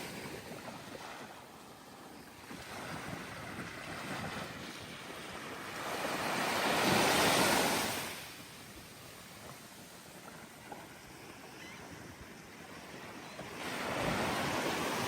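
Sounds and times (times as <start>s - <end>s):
steady hiss of surf: 4.6s - 15.0s.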